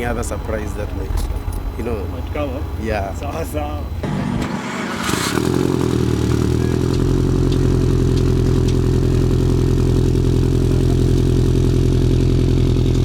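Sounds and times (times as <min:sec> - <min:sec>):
engine idling: 0:04.0 - 0:13.0.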